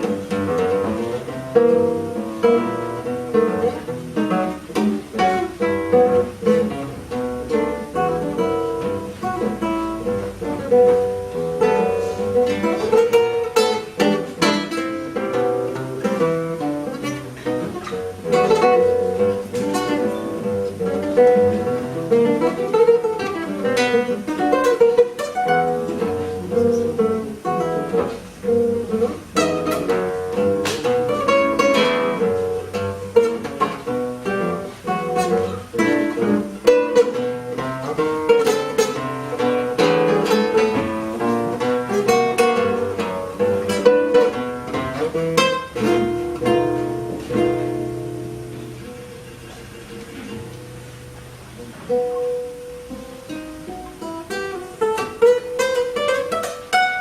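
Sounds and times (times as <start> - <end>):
classical guitar playing jazz-blues: 0.0 - 57.0.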